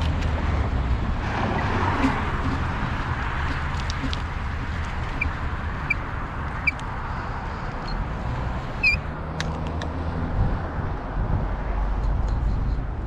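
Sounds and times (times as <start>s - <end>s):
wind on microphone: 0.0s - 9.0s, 9.6s - 13.0s
bicycle rumble: 0.0s - 9.1s
short high squeaks: 1.5s - 6.9s, 7.7s - 8.1s, 8.8s - 9.1s.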